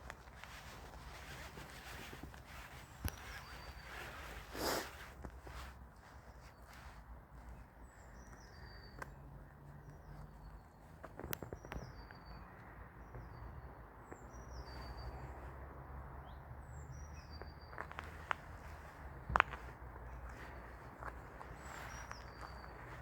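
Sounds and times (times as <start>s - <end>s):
soft footsteps: 0.0s - 11.9s, 17.4s - 23.0s
songbird singing: 0.0s - 23.0s.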